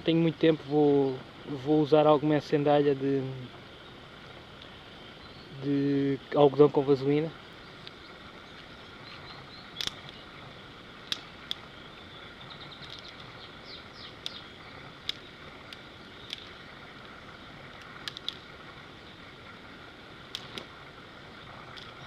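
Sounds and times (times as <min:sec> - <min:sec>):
outdoor background noise: 0:00.0 - 0:22.0
dry twigs snapping: 0:09.1 - 0:10.2, 0:11.0 - 0:11.7, 0:12.6 - 0:18.7, 0:20.3 - 0:20.8, 0:21.6 - 0:22.0.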